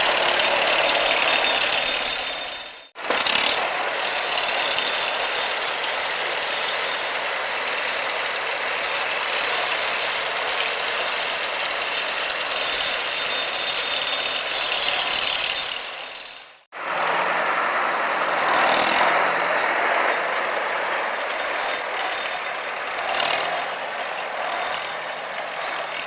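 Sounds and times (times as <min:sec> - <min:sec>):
tractor engine running: 0:00.0 - 0:03.8, 0:16.8 - 0:26.0.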